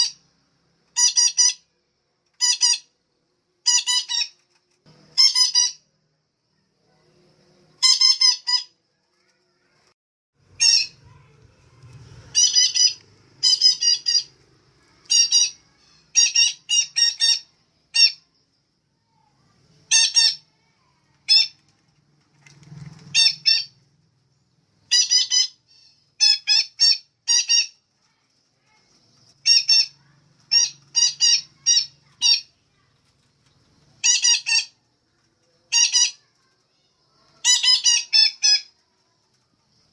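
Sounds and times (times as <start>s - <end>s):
parakeet squawking: 0.9s - 1.7s, 2.4s - 2.9s, 3.6s - 4.4s, 5.1s - 5.8s, 7.8s - 8.7s, 10.5s - 11.3s, 12.2s - 14.4s, 15.0s - 18.2s, 19.9s - 20.6s, 21.2s - 21.6s, 23.1s - 23.8s, 24.9s - 27.8s, 29.4s - 32.5s, 34.0s - 34.8s, 35.7s - 36.3s, 37.4s - 38.7s.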